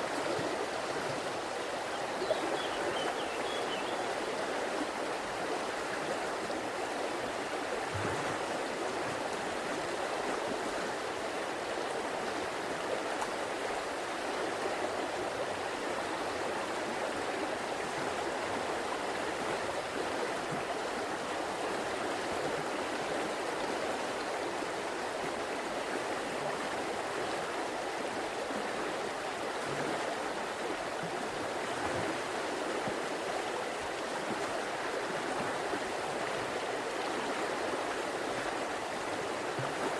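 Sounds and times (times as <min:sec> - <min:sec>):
faint water gurgles: 0:00.0 - 0:39.9
river water flowing: 0:00.0 - 0:39.9.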